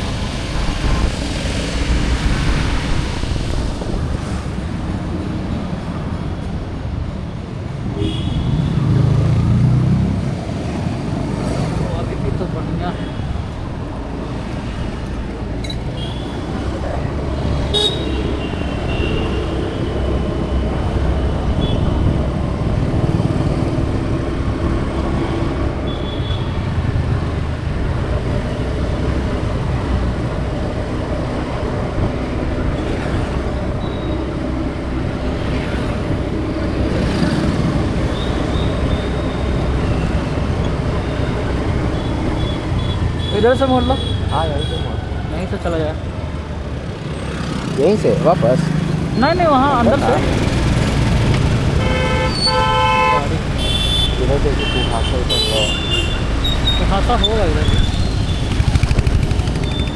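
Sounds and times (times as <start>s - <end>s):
traffic rumble: 0.0s - 59.9s
car horns tooting: 17.6s - 19.9s, 51.6s - 58.8s.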